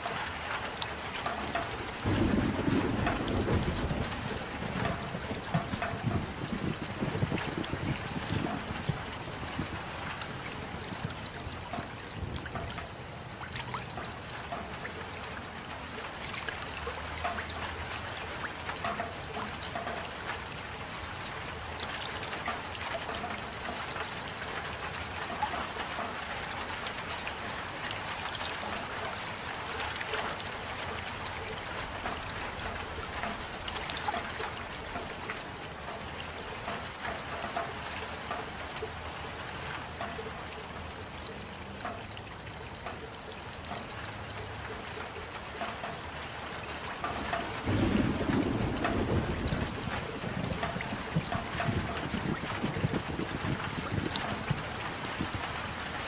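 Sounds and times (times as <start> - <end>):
rain drops pattering: 0.0 - 56.0
water trickling: 0.0 - 56.0.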